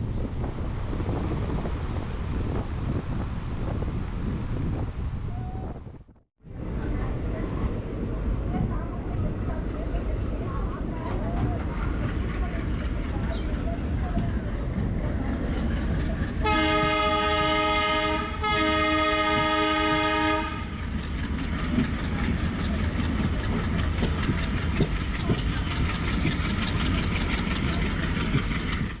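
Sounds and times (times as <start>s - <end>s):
train wheels clattering over rails: 10.0s - 17.6s, 19.2s - 29.0s
locomotive horn blasts: 16.4s - 20.8s.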